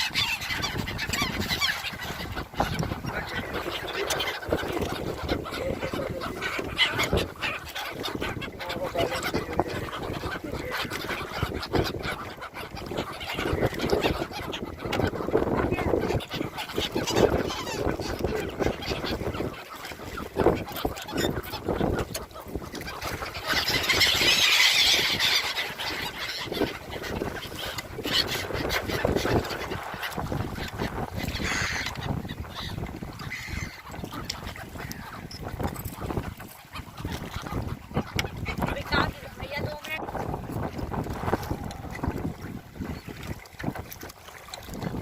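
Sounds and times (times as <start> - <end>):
gulls calling: 0.0 - 45.0.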